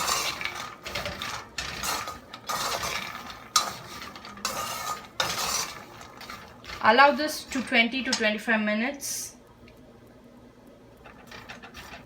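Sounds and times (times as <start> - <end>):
spatula scraping a pan: 0.0 - 7.9, 11.1 - 12.0
nuts rattling in a pan: 0.0 - 8.3, 11.1 - 12.0.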